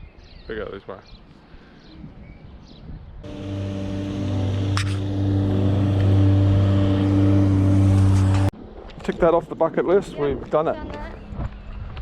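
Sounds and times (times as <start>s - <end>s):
vehicle engine humming: 3.2s - 8.5s.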